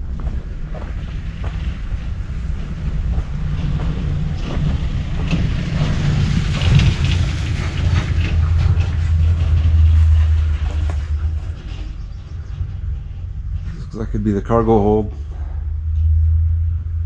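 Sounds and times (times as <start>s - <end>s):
heavy vehicle engine rumble: 0.0s - 17.0s.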